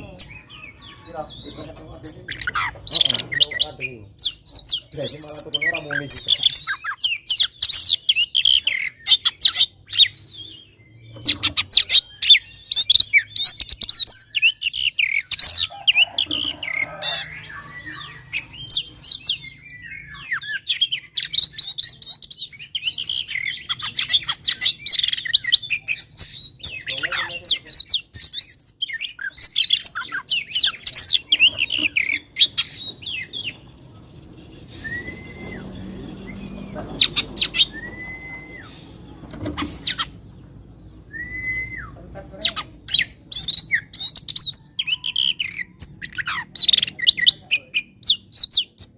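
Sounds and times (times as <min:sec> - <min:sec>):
bird singing rapid chirps: 0:00.0 - 0:48.9
steady whistled note: 0:34.7 - 0:35.8.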